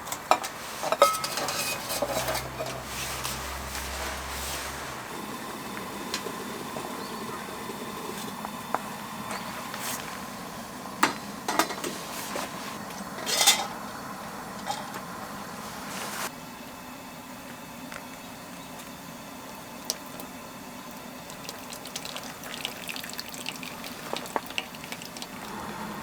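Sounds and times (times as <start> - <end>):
utensils clinking against dishes: 0.0 - 4.2, 11.0 - 12.0, 13.2 - 13.8, 14.6 - 15.0.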